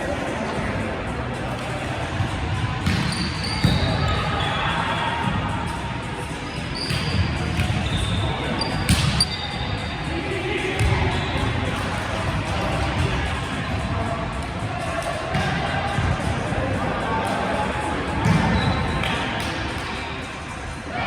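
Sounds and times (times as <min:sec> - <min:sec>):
players' voices echoing: 0:00.0 - 0:21.0
sneakers squeaking on gym floor: 0:02.8 - 0:04.6, 0:06.5 - 0:10.0.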